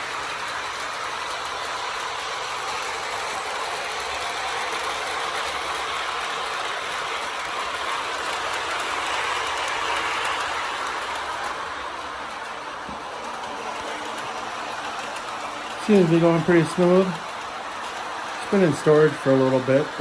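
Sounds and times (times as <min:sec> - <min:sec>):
toy train wheels rumbling on rails: 0:00.0 - 0:20.0.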